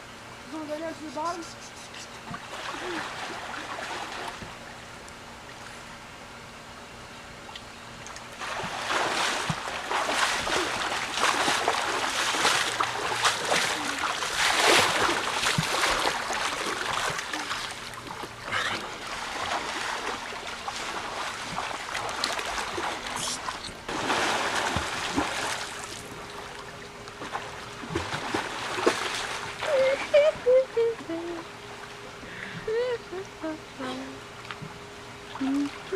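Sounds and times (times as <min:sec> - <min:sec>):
water rushing along boat hull: 0:02.2 - 0:04.9, 0:08.0 - 0:31.9.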